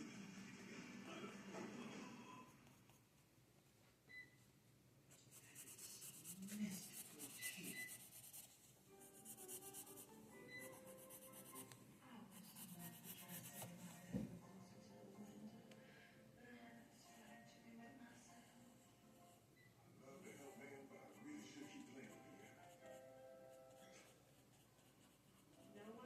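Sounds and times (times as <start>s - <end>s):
pencil scratching on paper: 5.2s - 14.1s, 21.4s - 26.0s
soft knock: 14.0s - 14.4s.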